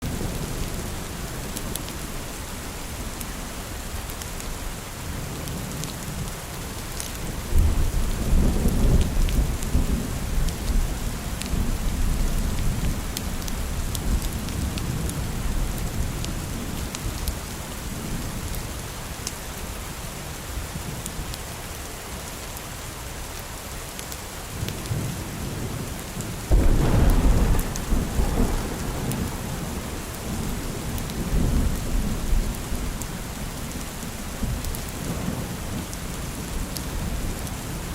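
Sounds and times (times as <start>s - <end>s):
steady rain: 0.0s - 37.9s
thunder rolling: 26.5s - 33.0s.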